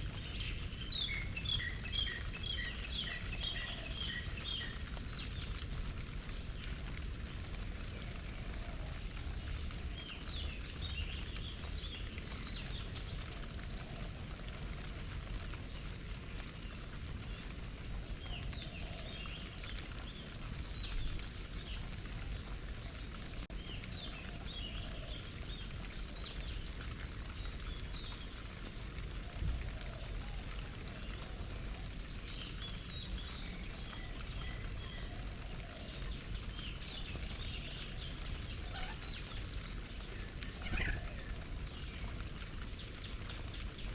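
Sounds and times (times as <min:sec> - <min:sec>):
water trickling: 0:00.0 - 0:43.9.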